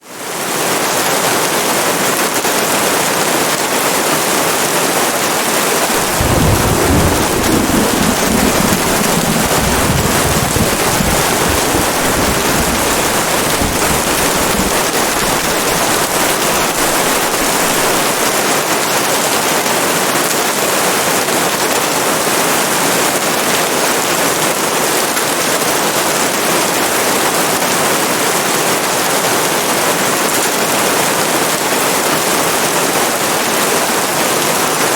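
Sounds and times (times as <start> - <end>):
steady rain hiss: 0.1 - 34.9
low roll of thunder: 5.9 - 18.4.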